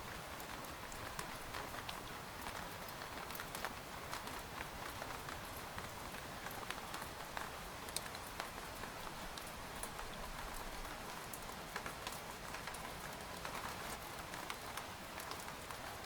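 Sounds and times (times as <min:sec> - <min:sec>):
rain pattering on tent fabric: 0:00.0 - 0:16.0.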